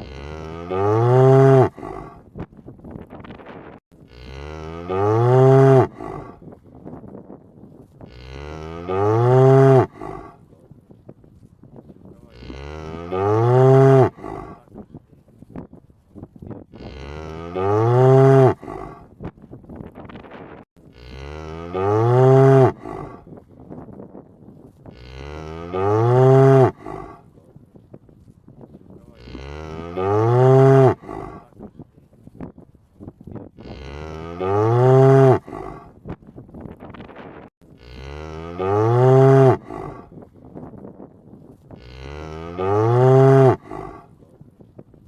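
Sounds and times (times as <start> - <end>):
cow mooing: 0.0 - 2.2, 4.0 - 6.4, 8.1 - 10.4, 12.3 - 14.6, 16.8 - 19.1, 20.9 - 23.2, 24.9 - 27.2, 29.1 - 31.5, 33.6 - 35.9, 37.8 - 40.1, 41.8 - 44.1.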